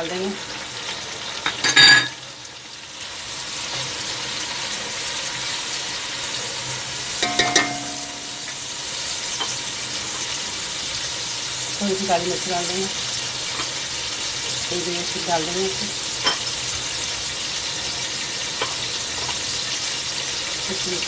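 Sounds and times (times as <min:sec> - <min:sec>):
vegetables sizzling in hot oil: 0:00.0 - 0:21.0
ringing metal clink: 0:07.2 - 0:08.4.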